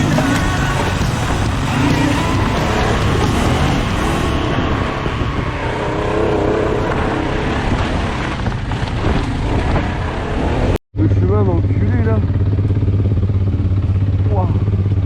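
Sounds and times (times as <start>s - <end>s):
rush of noise: 0.0s - 11.2s
motorcycle engine revving: 0.0s - 15.0s.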